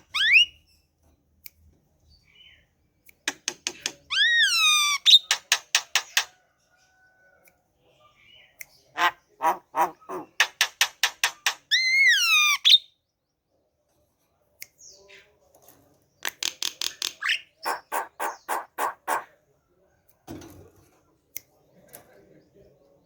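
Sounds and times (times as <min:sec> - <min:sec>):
rising and falling bird whistle: 0:00.1 - 0:00.6
myna calling: 0:08.9 - 0:10.5, 0:17.2 - 0:19.3.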